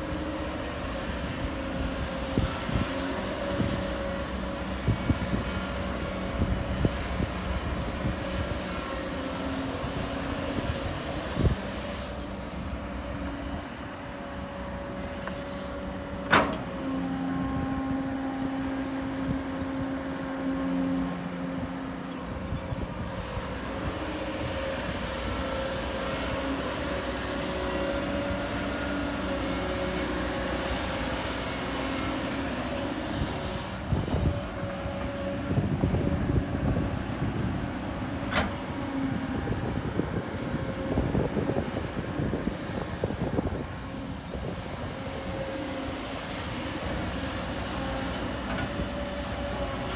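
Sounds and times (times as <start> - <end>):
diesel engines running: 0.0 - 49.9.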